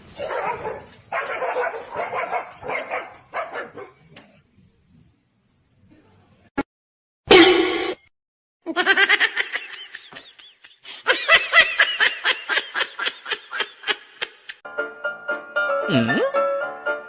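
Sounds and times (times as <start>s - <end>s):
hearty laughter: 8.8s - 14.6s.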